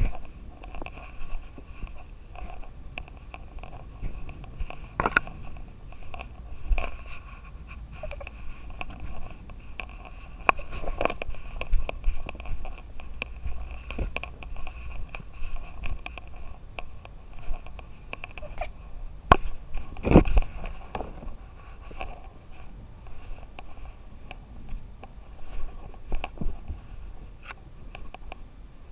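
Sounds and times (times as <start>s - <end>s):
rustling: 0.0s - 28.9s
camera handling clicks and knocks: 5.0s - 5.3s.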